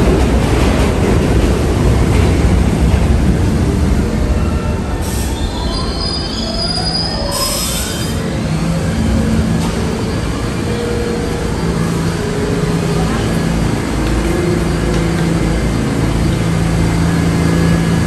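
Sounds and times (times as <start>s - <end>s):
subway train wheels rumbling on rail: 0.0s - 18.0s
high wheel squeal: 4.4s - 9.0s.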